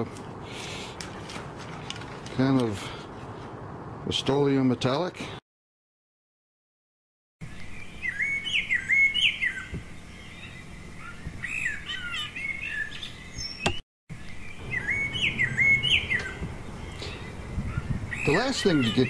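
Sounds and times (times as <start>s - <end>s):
birds chirping and singing: 7.4s - 19.0s.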